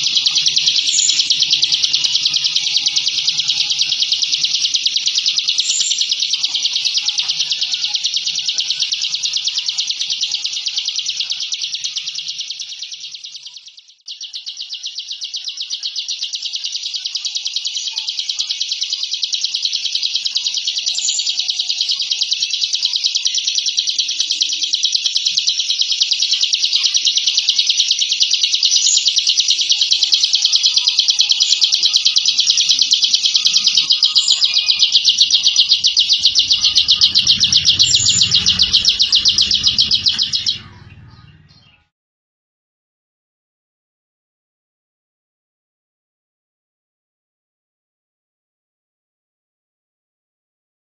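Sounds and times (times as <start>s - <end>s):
bird buzzing trill: 33.4s - 41.6s.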